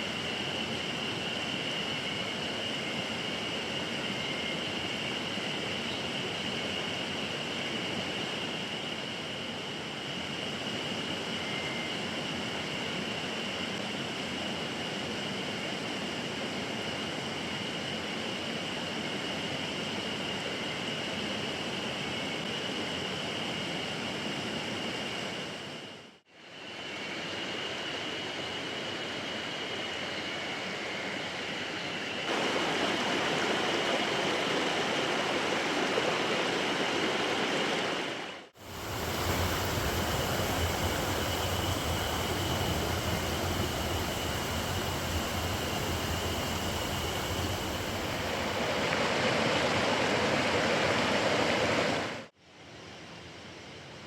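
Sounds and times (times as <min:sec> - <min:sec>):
stream rushing over rocks: 0:32.3 - 0:41.0, 0:47.6 - 0:52.3.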